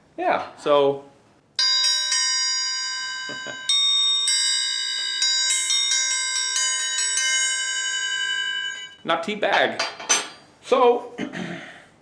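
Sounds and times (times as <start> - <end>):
steel triangle ringing: 1.6 - 10.5.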